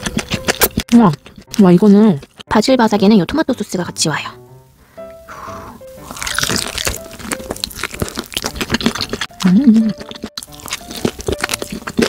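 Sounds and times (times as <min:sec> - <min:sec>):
crunching fried chicken: 0:00.0 - 0:02.5, 0:06.0 - 0:12.0
person humming mm: 0:09.4 - 0:10.0.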